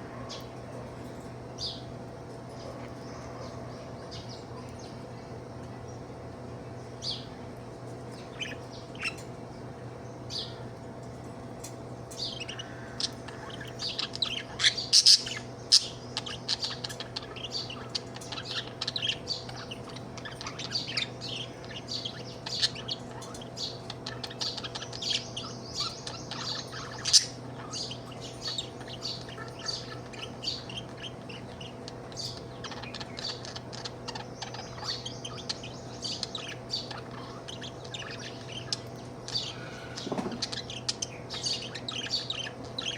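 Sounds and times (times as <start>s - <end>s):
steady low hum: 0.0s - 42.9s
budgie chirping and chattering: 12.3s - 42.9s.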